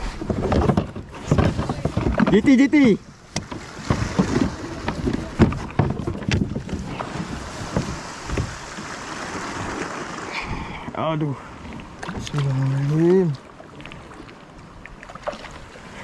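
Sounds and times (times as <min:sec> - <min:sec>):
water lapping around a kayak: 0:00.0 - 0:16.0
knocks and taps against hull: 0:00.2 - 0:08.9
wind on microphone: 0:03.0 - 0:12.6.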